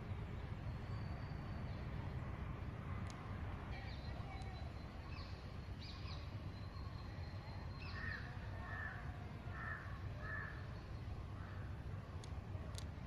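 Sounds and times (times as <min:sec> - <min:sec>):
crow cawing: 0:08.0 - 0:10.6.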